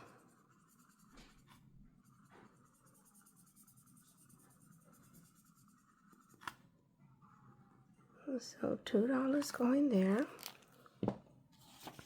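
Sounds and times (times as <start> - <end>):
marker scratching on laminated paper: 0.0 - 6.6.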